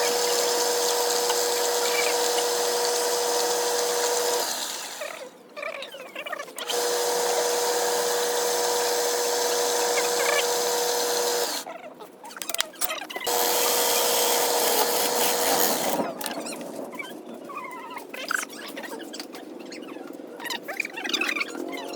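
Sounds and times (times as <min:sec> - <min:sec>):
power tool cutting wood: 0:00.0 - 0:05.3, 0:06.6 - 0:11.6, 0:13.3 - 0:16.1.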